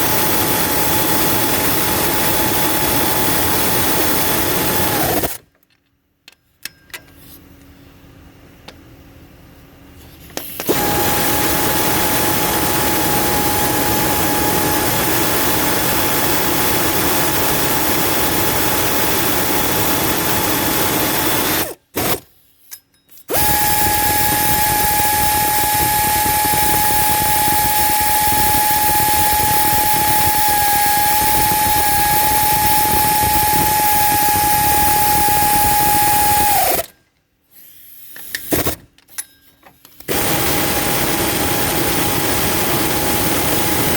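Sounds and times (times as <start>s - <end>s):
power tool whining: 0.0s - 5.4s, 10.6s - 22.2s, 23.3s - 36.9s, 40.1s - 43.9s.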